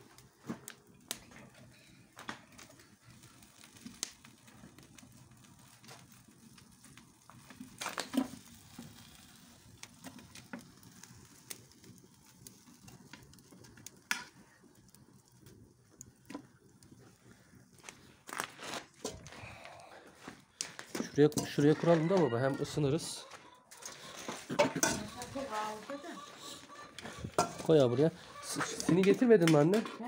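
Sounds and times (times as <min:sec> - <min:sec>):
embers crackling: 0:00.0 - 0:30.0.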